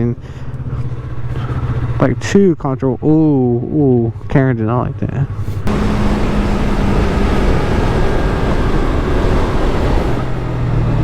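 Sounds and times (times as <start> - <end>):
wind noise on microphone: 5.7 - 10.6
motorcycle engine: 5.7 - 10.7.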